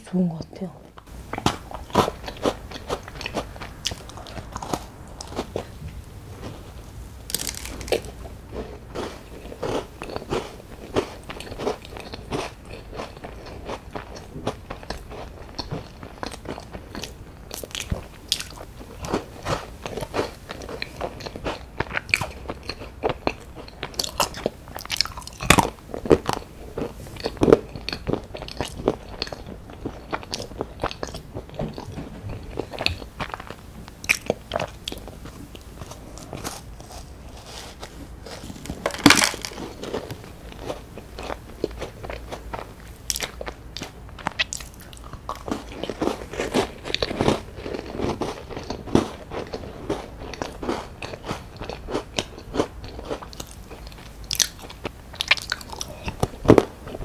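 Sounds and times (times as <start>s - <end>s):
crunchy biscuit chewing: 1.0s - 57.0s.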